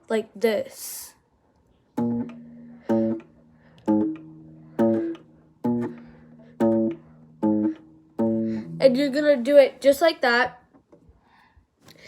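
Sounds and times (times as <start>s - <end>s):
guitar string plucked: 2.0s - 9.2s.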